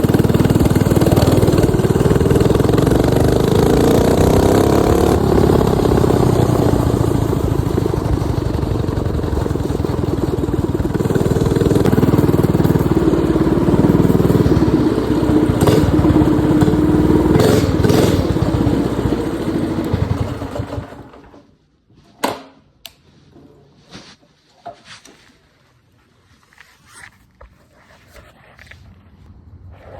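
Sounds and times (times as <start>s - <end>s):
minibike engine revving: 0.0s - 21.5s.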